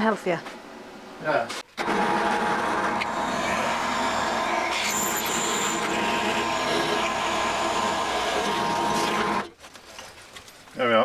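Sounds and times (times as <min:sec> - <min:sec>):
electric drill boring steel: 0:01.8 - 0:09.5.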